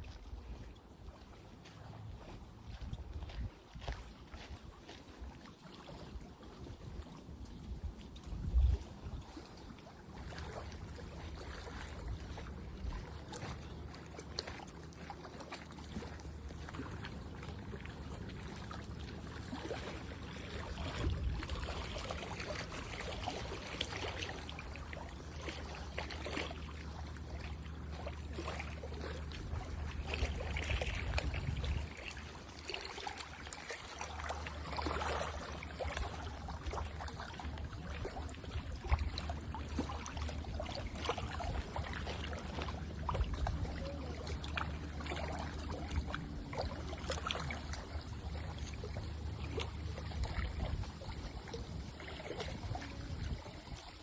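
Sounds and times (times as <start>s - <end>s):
small splashes: 0.0s - 54.0s
water trickling and lapping: 0.0s - 54.0s
steady low hum: 10.0s - 54.0s.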